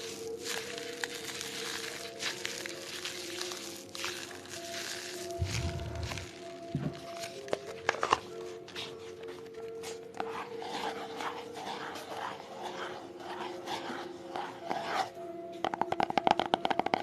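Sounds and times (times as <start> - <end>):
soft rubbing and scratching: 0.0 - 7.2, 9.8 - 15.2
faint background music: 0.0 - 17.0.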